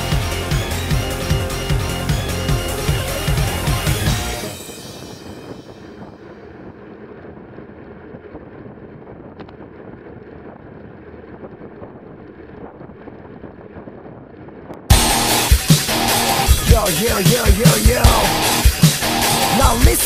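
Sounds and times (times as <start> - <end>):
wind rumbling on microphone: 4.6 - 14.9.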